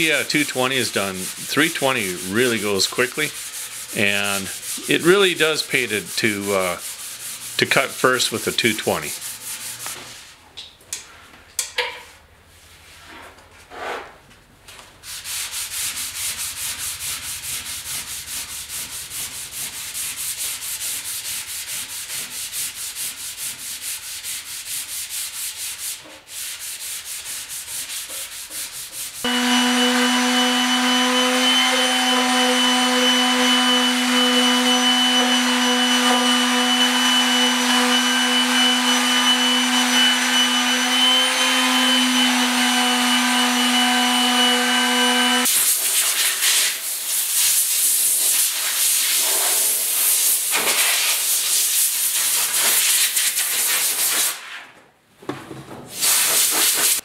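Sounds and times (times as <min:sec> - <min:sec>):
sandpaper rubbing on metal: 0:00.0 - 0:10.4, 0:15.0 - 0:29.3, 0:44.4 - 0:54.6, 0:56.0 - 0:57.0.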